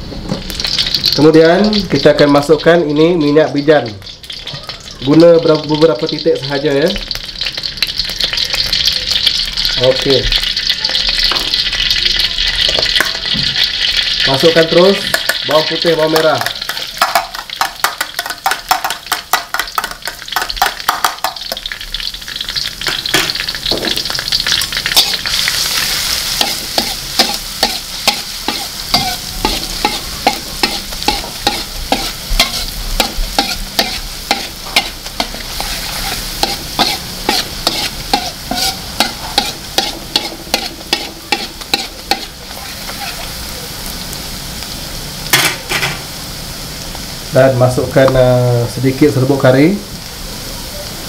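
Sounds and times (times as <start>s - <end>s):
garlic sizzling in oil: 0.0s - 51.0s
metal spatula scraping wok: 21.6s - 43.5s.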